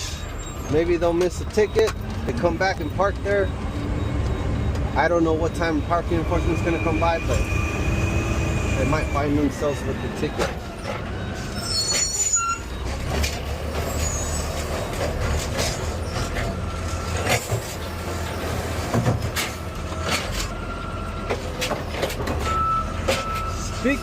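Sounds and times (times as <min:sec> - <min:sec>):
high squeal: 0:00.0 - 0:01.8, 0:05.0 - 0:12.8, 0:13.7 - 0:17.1.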